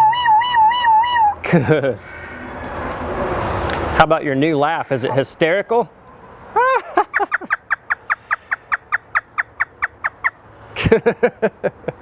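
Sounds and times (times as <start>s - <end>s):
parrot mimicking laughter: 6.5s - 10.3s.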